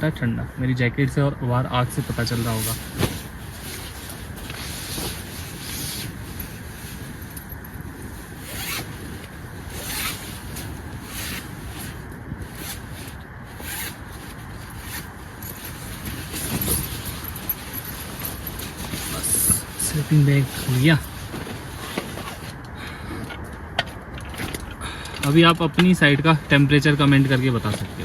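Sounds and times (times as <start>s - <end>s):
nylon rustling: 0.0s - 0.7s, 1.4s - 22.6s, 23.9s - 28.0s
zipper pulls: 1.9s - 22.6s, 26.5s - 28.0s.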